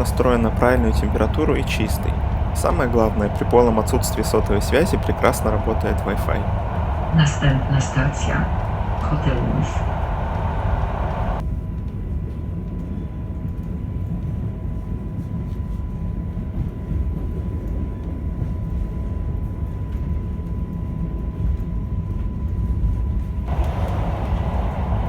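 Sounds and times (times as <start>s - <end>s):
thin high whine: 0.0s - 11.4s, 23.5s - 25.0s
train wheels rumbling on track: 0.0s - 25.0s.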